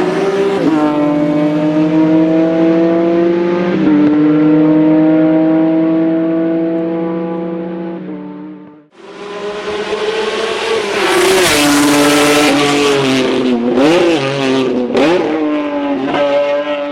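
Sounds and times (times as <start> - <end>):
race car engine passing: 0.0 - 16.9.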